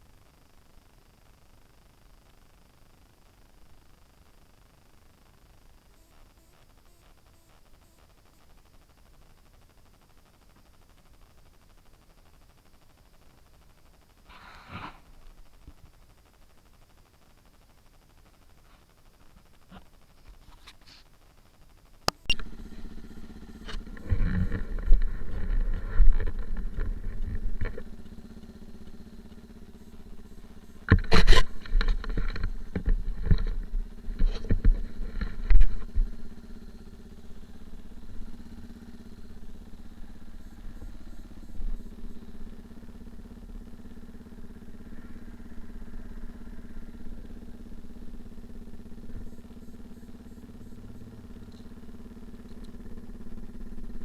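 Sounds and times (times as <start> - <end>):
engine running: 22.1 - 54.0.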